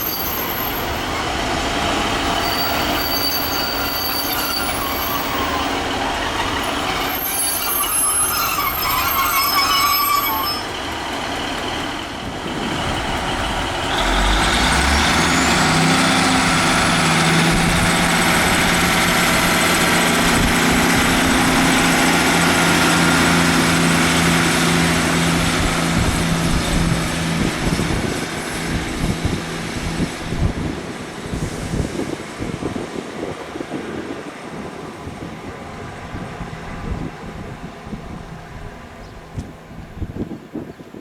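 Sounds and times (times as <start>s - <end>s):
diesel train passing: 0.0s - 41.0s.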